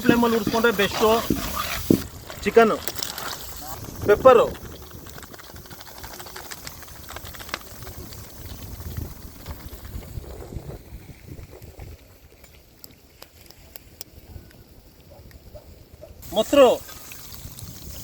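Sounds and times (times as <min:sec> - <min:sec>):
low flame rumble: 0:03.4 - 0:12.2
food bubbling in a pot: 0:16.8 - 0:18.0.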